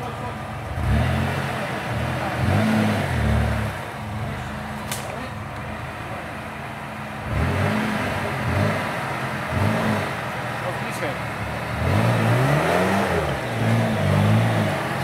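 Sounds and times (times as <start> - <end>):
vehicle engine revving: 0.0 - 15.0
sharp click: 4.8 - 5.2.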